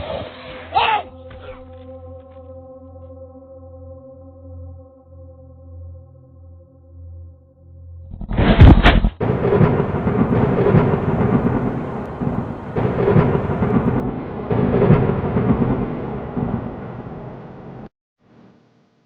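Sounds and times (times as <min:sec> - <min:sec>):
loud sudden crash: 0:08.2 - 0:16.9
thunder-like rumbling: 0:08.2 - 0:17.9.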